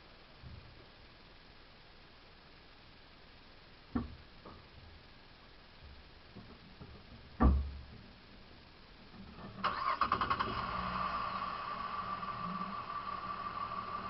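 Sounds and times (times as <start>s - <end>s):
motor starting and whining: 9.6s - 14.0s.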